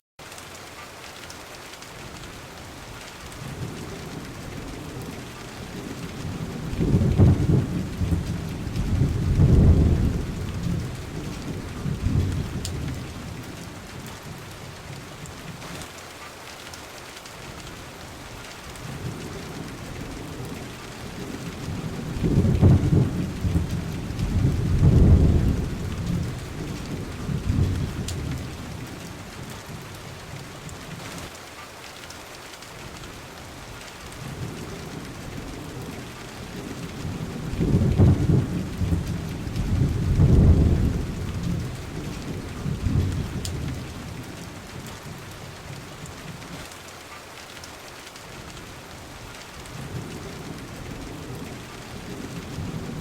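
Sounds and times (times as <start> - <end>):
steady rain: 0.2 - 53.0
rolling thunder: 3.4 - 13.7, 18.8 - 29.9, 34.2 - 45.2, 49.7 - 53.0.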